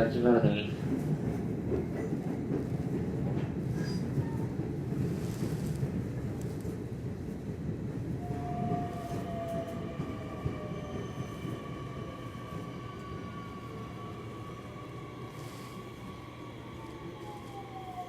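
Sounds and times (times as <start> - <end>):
train wheels rumbling on track: 0.0 - 18.0
electric whine of braking train: 8.2 - 18.0.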